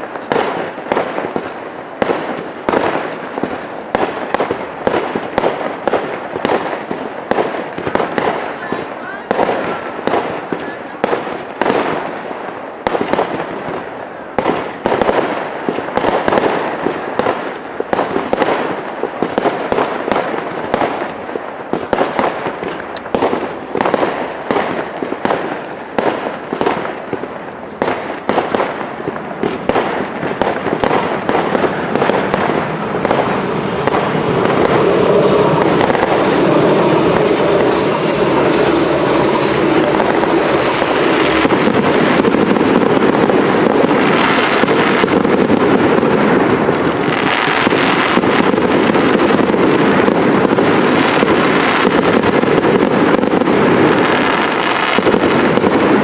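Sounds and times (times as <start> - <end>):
fireworks cracking: 0.0 - 56.0
fountain fireworks hissing: 0.0 - 56.0.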